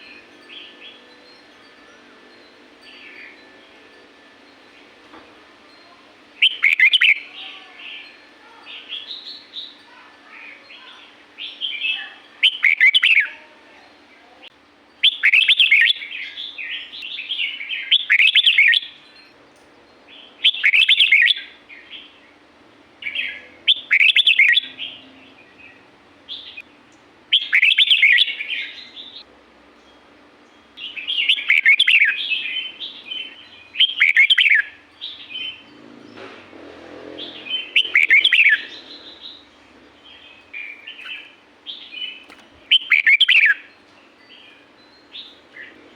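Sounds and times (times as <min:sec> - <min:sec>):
soft bird chatter: 0:05.7 - 0:45.9
bird singing falling notes: 0:29.9 - 0:45.9.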